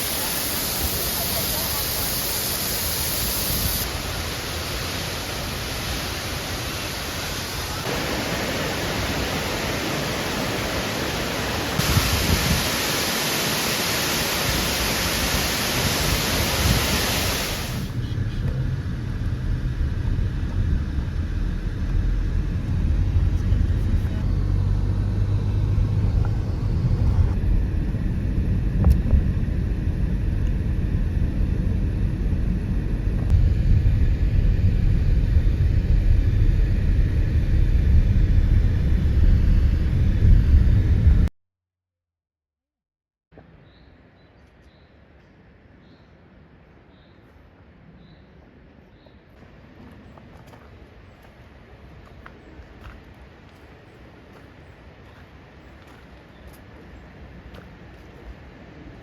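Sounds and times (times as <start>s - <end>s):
waterfall rushing: 0.0s - 18.0s
low rumble: 17.7s - 41.3s.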